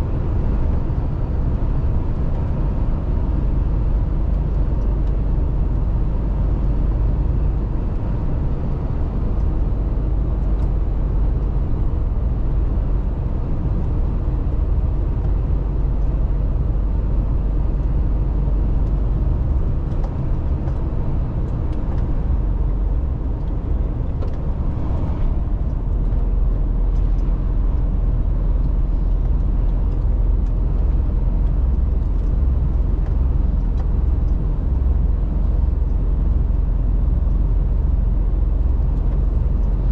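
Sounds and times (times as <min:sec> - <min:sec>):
truck diesel engine: 0:00.0 - 0:39.9.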